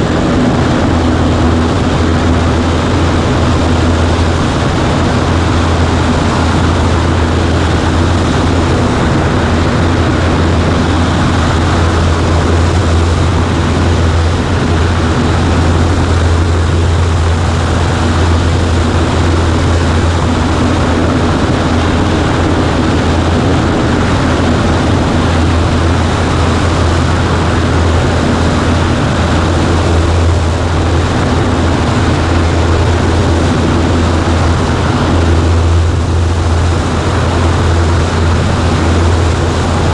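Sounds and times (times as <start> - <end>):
light airplane engine droning: 0.0 - 39.9.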